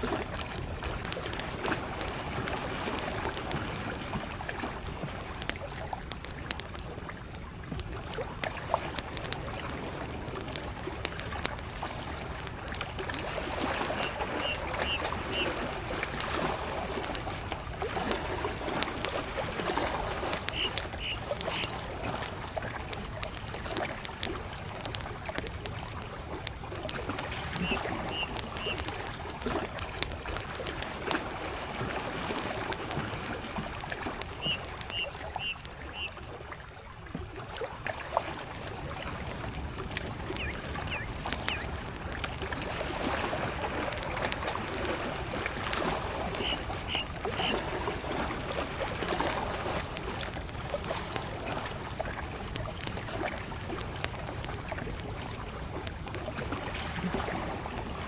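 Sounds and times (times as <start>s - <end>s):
campfire crackling and popping: 0.0s - 58.0s
water lapping against shore: 0.0s - 58.0s
bird calling high notes: 13.9s - 15.6s, 20.4s - 21.8s, 27.6s - 28.9s, 34.4s - 36.2s, 40.3s - 41.7s, 46.3s - 47.7s.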